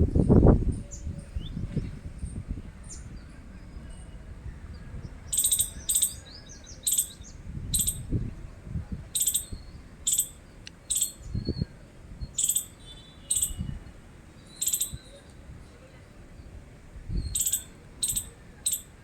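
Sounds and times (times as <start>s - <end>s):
squirrel chirping: 5.3s - 8.1s, 9.1s - 11.4s, 12.3s - 13.7s, 14.5s - 15.1s, 17.3s - 19.0s.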